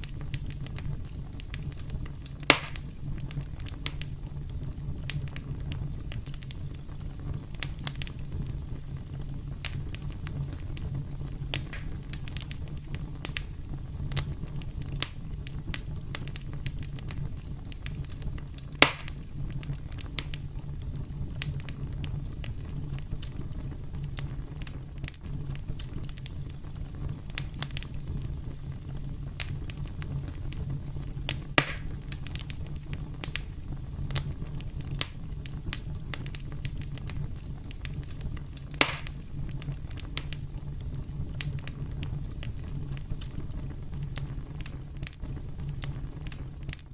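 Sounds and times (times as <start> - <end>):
campfire crackling: 0.0 - 46.9
fire popping: 0.0 - 46.9.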